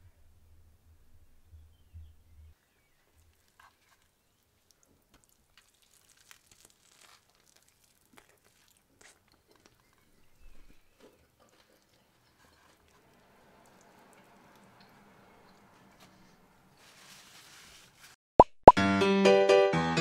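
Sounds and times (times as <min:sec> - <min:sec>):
crisp crackles of toasted bread: 0:03.0 - 0:10.4
sandwich being bitten and chewed: 0:03.1 - 0:10.0.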